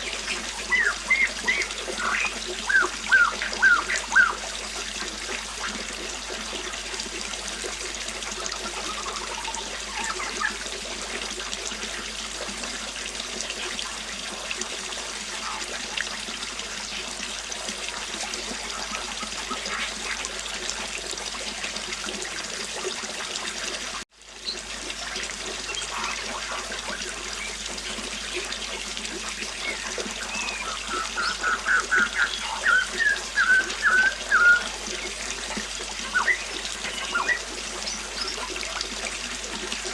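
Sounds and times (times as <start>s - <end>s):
bird singing loud notes: 0.0s - 4.4s, 29.6s - 35.4s, 36.0s - 38.5s
birds chirping: 0.0s - 4.5s, 8.6s - 10.6s, 25.6s - 27.6s, 29.2s - 38.6s
river water flowing: 0.0s - 39.9s.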